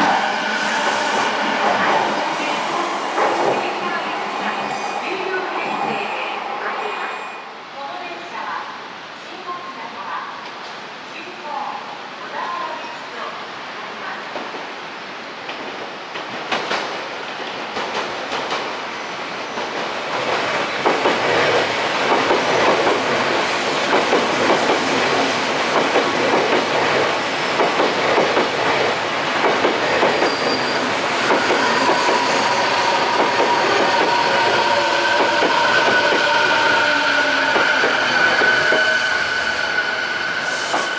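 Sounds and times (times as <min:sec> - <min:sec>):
train wheels clacking over rail joints: 0:19.6 - 0:36.8.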